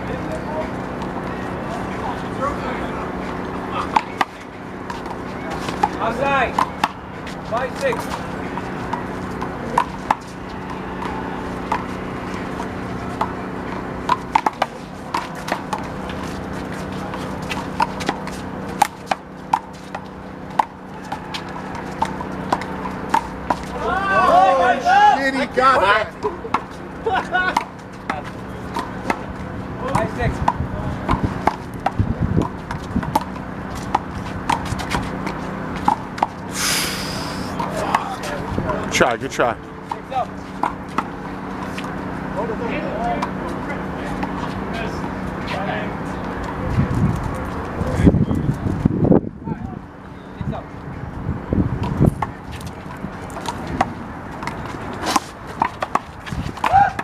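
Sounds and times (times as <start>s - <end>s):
handball smacks and bounces: 13.1s - 16.3s, 29.9s - 36.4s
steady low hum: 26.2s - 56.6s.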